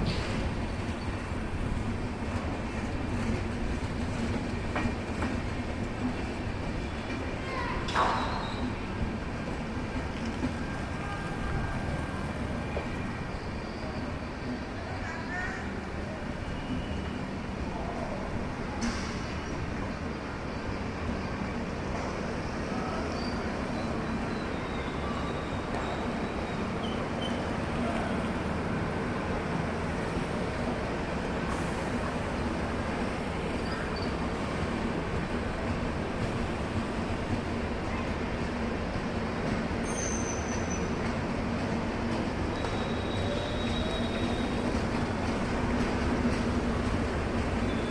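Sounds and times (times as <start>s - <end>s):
moving train rumble and hiss: 0.0s - 47.9s.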